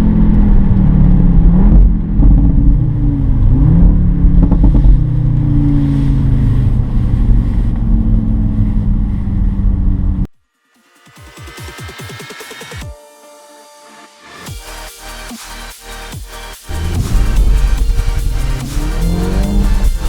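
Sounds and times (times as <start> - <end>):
car engine running hard: 0.0 - 10.3, 16.6 - 20.0.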